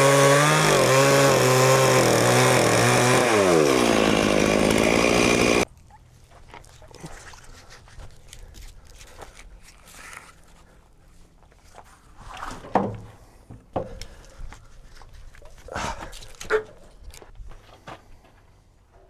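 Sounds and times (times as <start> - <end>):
chainsaw engine running: 0.0 - 5.6.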